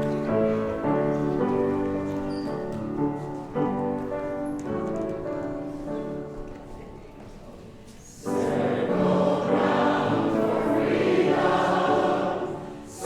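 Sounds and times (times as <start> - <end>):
piano playing sustained chords: 0.0 - 2.2, 8.3 - 13.0.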